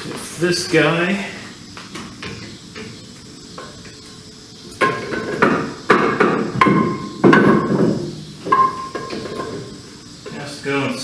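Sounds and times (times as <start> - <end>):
metal knocking against metal: 4.8 - 9.7.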